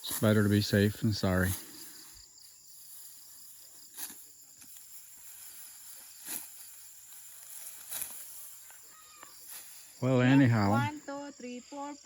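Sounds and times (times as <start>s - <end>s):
crickets chirping: 0.0s - 12.0s
rice stalks cut by hand: 3.9s - 8.8s.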